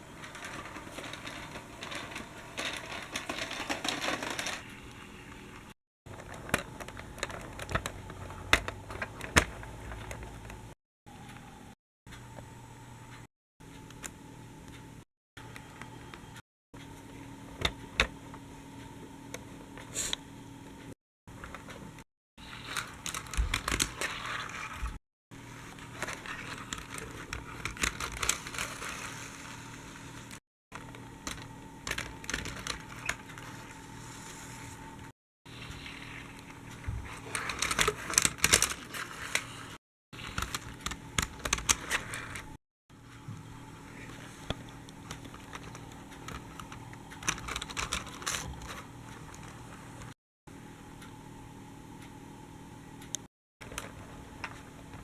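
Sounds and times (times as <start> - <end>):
small hard objects rattling: 0.0 - 4.8
crinkling handling noise: 0.0 - 10.8, 21.3 - 42.6, 43.8 - 50.2, 53.6 - 55.0.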